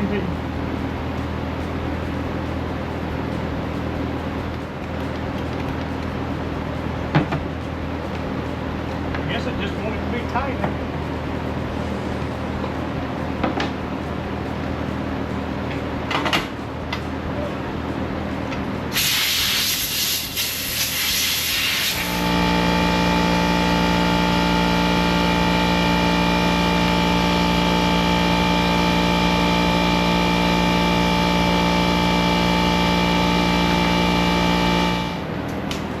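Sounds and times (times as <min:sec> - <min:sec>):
machine running steadily: 0:00.0 - 0:36.0
rushing air hiss: 0:18.9 - 0:22.2.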